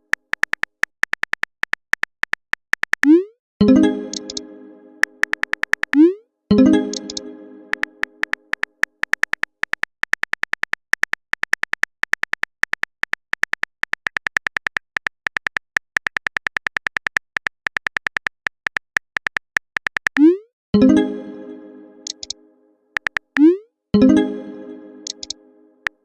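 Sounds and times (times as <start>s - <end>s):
phone keyboard typing clicks: 0.0s - 3.2s, 4.1s - 4.4s, 5.0s - 6.1s, 6.8s - 20.4s, 22.0s - 22.4s, 23.0s - 23.6s, 25.0s - 26.0s
rising message tone: 6.0s - 8.2s.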